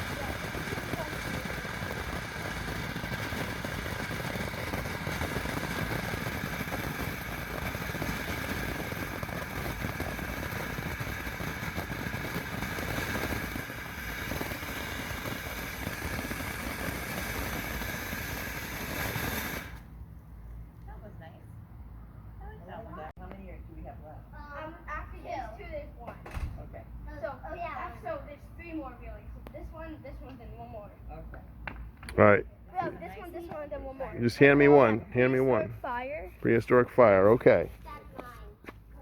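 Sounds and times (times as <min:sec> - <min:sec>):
firework fountain hissing and crackling: 0:00.0 - 0:20.0, 0:27.1 - 0:31.2, 0:32.7 - 0:39.0.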